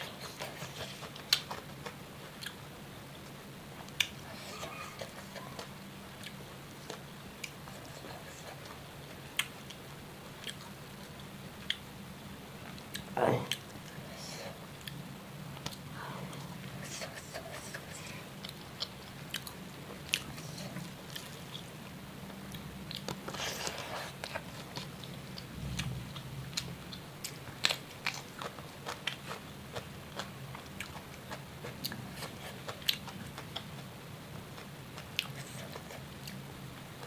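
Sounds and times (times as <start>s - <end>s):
steady low hum: 0.0s - 37.0s
person chewing crunchy food: 17.6s - 21.7s, 22.4s - 36.4s.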